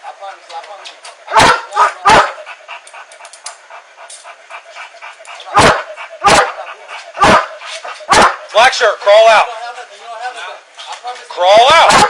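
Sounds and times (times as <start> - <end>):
dog barking: 1.3 - 2.5, 5.5 - 8.5.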